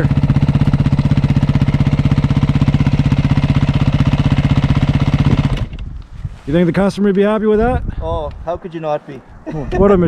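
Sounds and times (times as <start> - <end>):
dirt bike engine idling: 0.0 - 5.9.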